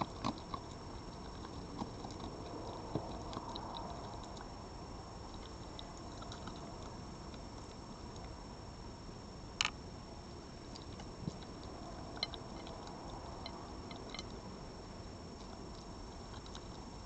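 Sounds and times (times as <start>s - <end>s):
faint clicks and ticks: 0.0s - 4.6s, 5.3s - 8.4s, 10.6s - 14.4s, 15.3s - 17.0s
steady hiss: 0.0s - 17.0s.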